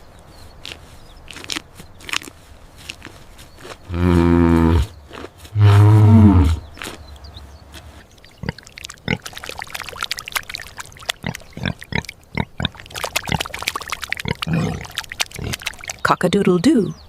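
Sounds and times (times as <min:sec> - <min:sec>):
pig grunting: 0:03.9 - 0:05.0, 0:05.6 - 0:06.7, 0:11.2 - 0:13.5, 0:14.2 - 0:15.7.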